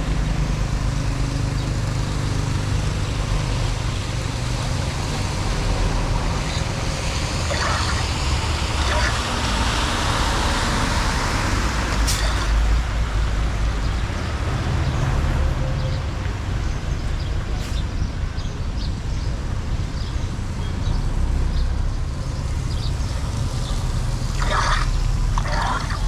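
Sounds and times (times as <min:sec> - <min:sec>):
floodwater rushing down a drain: 0:04.8 - 0:13.0, 0:24.0 - 0:26.0.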